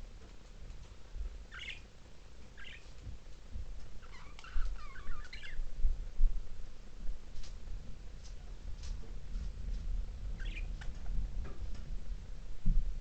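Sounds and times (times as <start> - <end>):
budgerigars chirping: 1.5 - 1.9, 2.6 - 2.9, 4.0 - 5.6, 10.4 - 10.7
low rumble with bumps: 5.6 - 13.0.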